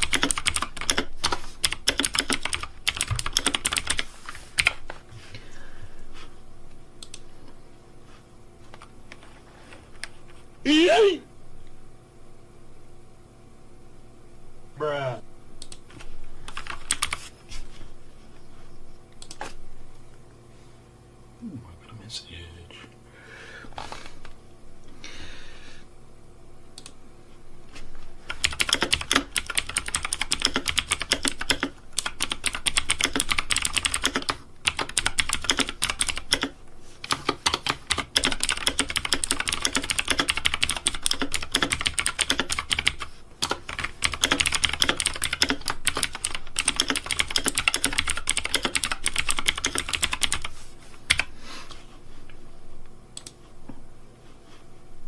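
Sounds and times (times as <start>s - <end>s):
rapid keyboard typing: 0.0s - 5.0s, 15.6s - 17.3s, 28.2s - 51.3s.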